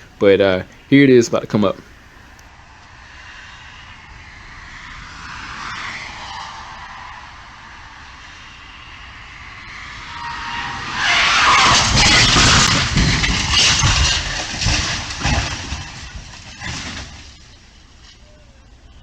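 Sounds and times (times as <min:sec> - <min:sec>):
car crashing and rolling over: 0:10.7 - 0:18.2
scraping and crunching metal: 0:11.6 - 0:18.2
heavy thumps of tumbling car: 0:11.9 - 0:17.6.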